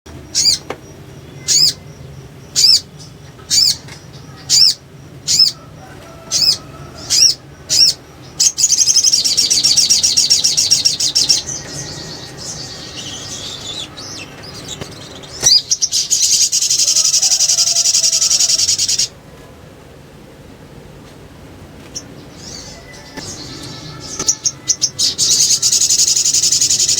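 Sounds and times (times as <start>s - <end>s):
bird call notes: 0.1s - 19.2s, 22.0s - 26.9s
bird chattering trills: 0.1s - 19.2s, 21.9s - 26.9s.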